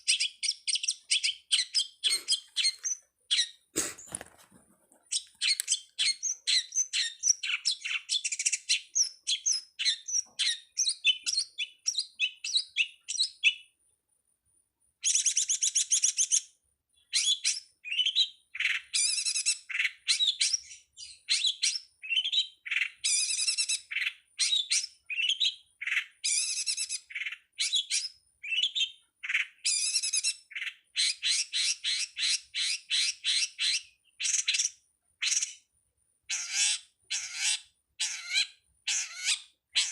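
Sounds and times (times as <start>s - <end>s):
bird chattering song: 0.0s - 4.2s, 5.0s - 13.8s, 15.0s - 35.7s, 36.3s - 39.9s.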